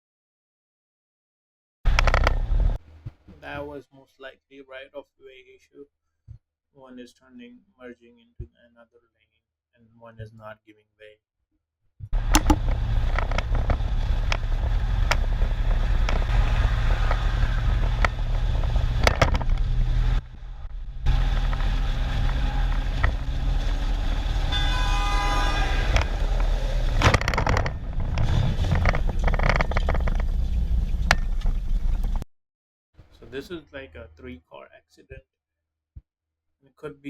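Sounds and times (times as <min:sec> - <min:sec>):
engine and road noise: 0:01.9 - 0:03.5, 0:12.2 - 0:32.2
sharp knocks: 0:12.2 - 0:19.7
vehicle horn honking: 0:24.0 - 0:27.0.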